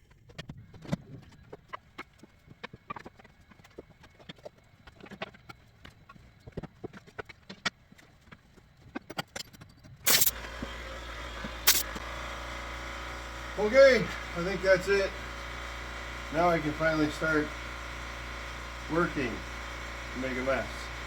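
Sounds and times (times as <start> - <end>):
loud burst: 10.1 - 10.6, 11.5 - 12.2
machine humming: 10.1 - 21.0.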